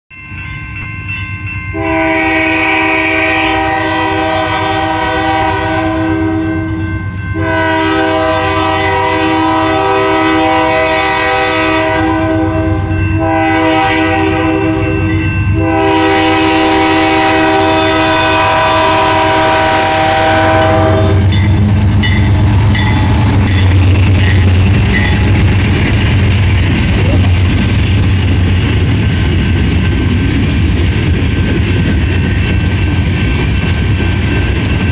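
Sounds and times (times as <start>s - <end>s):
locomotive horn blowing: 1.7s - 23.6s
diesel engines rumbling: 18.0s - 33.1s
train wheels clicking: 19.2s - 34.9s.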